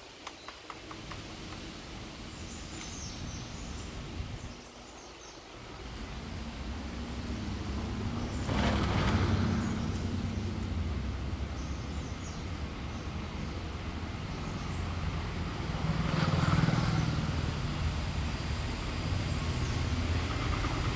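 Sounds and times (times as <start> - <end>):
low rumble of road traffic: 0.0 - 20.9
vehicle passing close by: 5.5 - 20.9.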